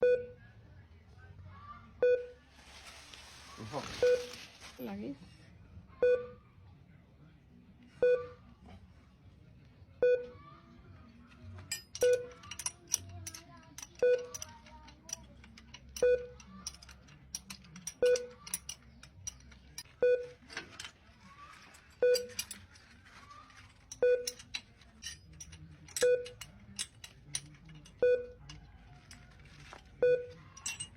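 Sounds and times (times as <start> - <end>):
short electronic beep: 4.0 - 4.3
light clicks and rattles: 11.3 - 30.9.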